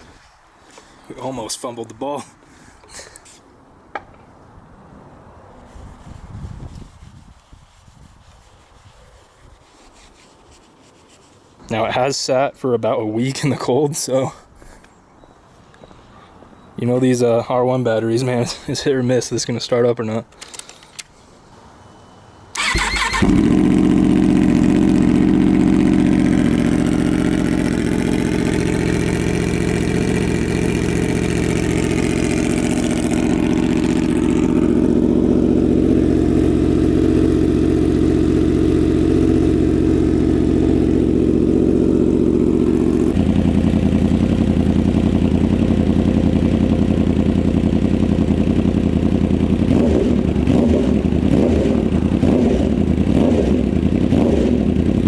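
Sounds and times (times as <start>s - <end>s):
motorcycle engine starting: 22.5s - 55.0s
motorcycle engine idling: 22.6s - 55.0s.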